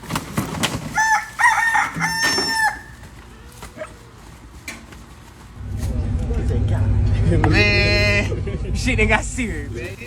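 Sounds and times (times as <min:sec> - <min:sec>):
rooster crowing: 0:00.8 - 0:03.9.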